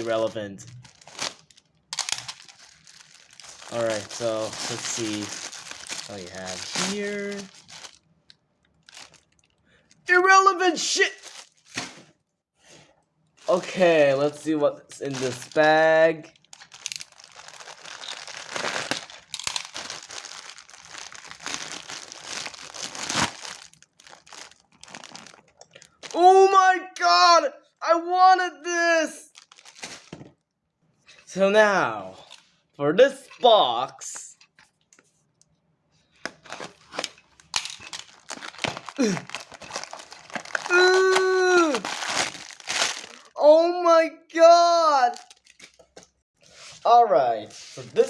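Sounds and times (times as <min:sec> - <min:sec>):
plastic bag crinkling: 0:00.0 - 0:08.1, 0:08.7 - 0:09.6, 0:11.1 - 0:12.1, 0:13.4 - 0:26.2, 0:29.3 - 0:30.3, 0:36.2 - 0:43.4, 0:45.1 - 0:46.0.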